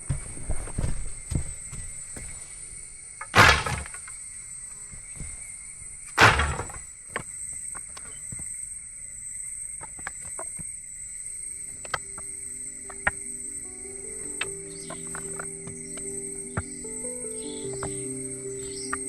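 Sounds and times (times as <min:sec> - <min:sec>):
jungle insects droning: 0:00.0 - 0:19.0
loud sharp strikes: 0:03.4 - 0:03.9, 0:06.2 - 0:06.8.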